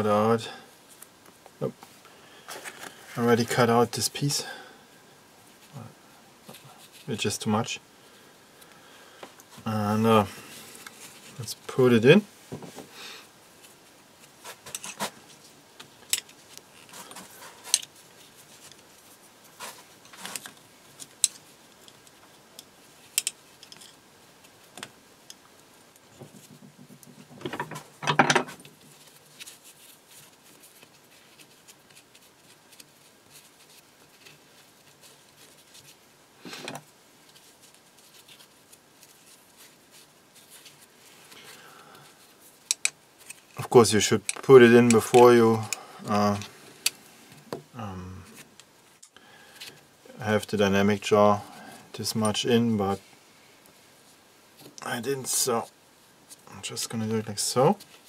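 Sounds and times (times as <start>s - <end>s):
metal rod clicking and scraping: 42.7s - 43.0s.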